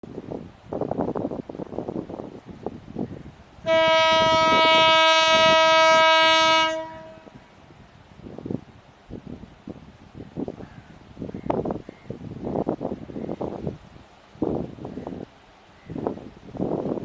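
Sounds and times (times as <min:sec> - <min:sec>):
wind buffeting microphone: 0:00.0 - 0:17.0
locomotive horn blast: 0:03.6 - 0:07.4.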